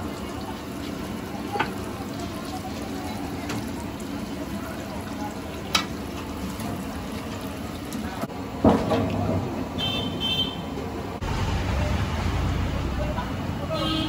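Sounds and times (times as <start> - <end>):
hot oil sizzling: 0.0 - 9.8.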